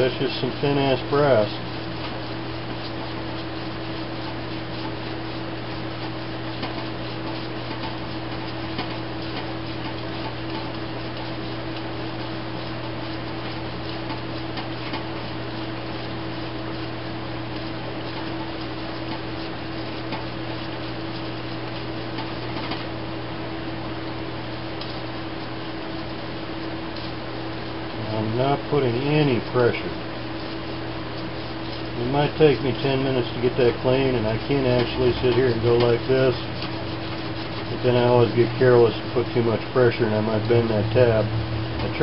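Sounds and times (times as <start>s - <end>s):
machine hum: 0.0s - 42.0s
screwdriver scraping metal: 31.7s - 38.5s.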